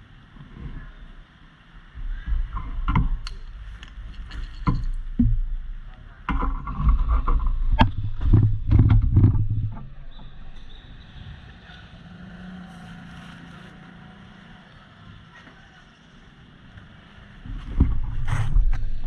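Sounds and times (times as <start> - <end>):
knocks: 4.5 - 5.7.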